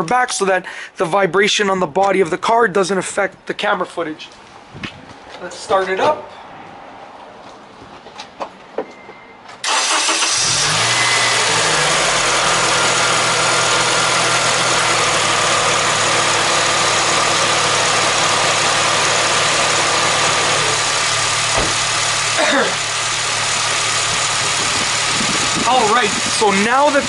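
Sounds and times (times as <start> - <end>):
car starter cranking: 9.6 - 12.4
car engine revving and idling: 9.7 - 27.0.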